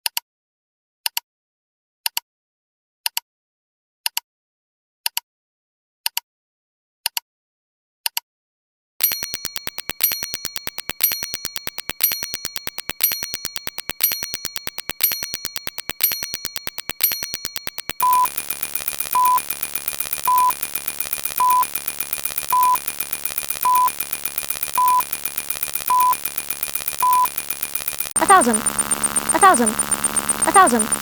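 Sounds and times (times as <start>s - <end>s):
fast run of clicks: 9.0s - 31.0s
short high beeps: 9.1s - 31.0s.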